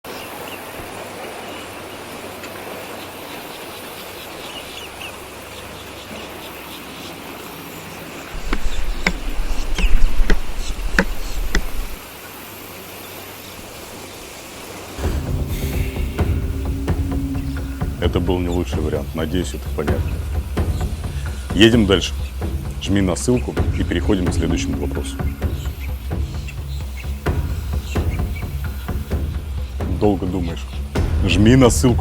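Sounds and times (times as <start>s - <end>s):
faint insects chirping: 0.2s - 32.0s
loud low rumble: 15.0s - 26.2s.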